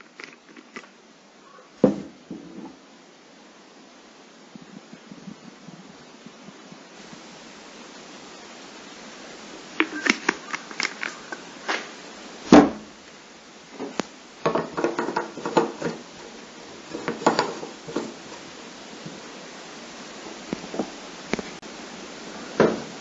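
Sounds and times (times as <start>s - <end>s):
steady hiss: 0.0s - 23.0s
loud thump: 1.8s - 2.7s, 12.5s - 12.9s
objects clicking and tapping: 9.8s - 11.9s, 13.8s - 16.0s, 16.9s - 18.2s.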